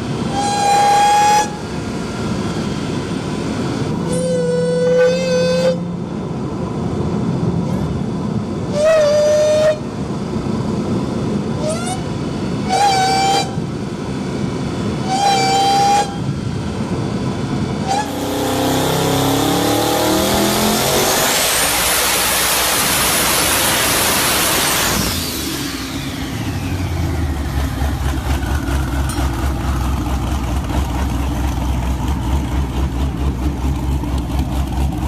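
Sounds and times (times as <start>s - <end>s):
vehicle rumble: 0.0s - 35.0s
car horn honking: 17.9s - 18.3s
car engine revving: 17.9s - 35.0s.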